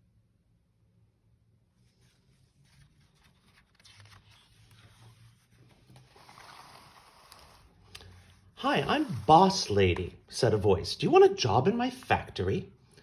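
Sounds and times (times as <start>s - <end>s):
book page rustling: 1.8s - 10.2s.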